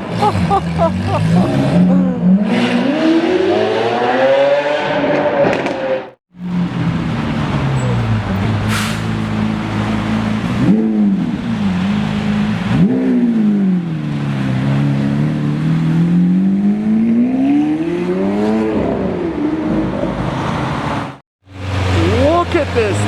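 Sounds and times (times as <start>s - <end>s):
sports car engine revving: 0.0s - 8.5s, 9.4s - 23.0s.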